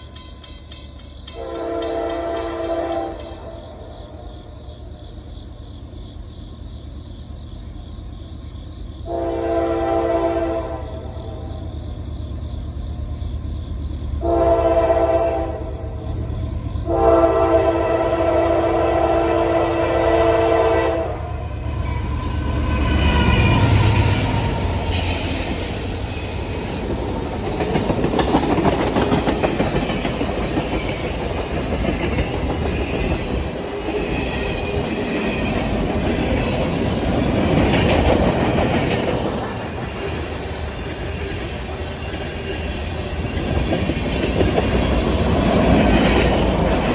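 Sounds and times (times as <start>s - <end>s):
train wheels clattering on rails: 0.0s - 6.6s, 19.1s - 46.9s
train horn blasts: 1.3s - 4.2s, 9.0s - 11.3s, 14.2s - 15.9s, 16.8s - 25.9s
locomotive engine rumble: 15.4s - 46.9s
wheels squealing: 21.2s - 31.2s.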